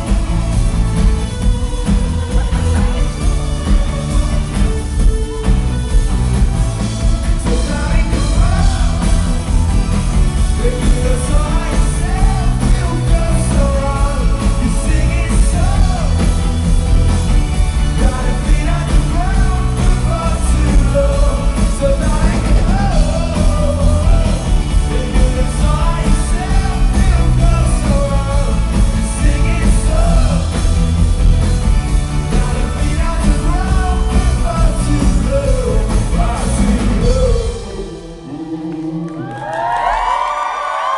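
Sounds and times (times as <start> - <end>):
person singing: 0.0 - 31.0, 32.1 - 40.0
rock band playing live: 0.0 - 40.9.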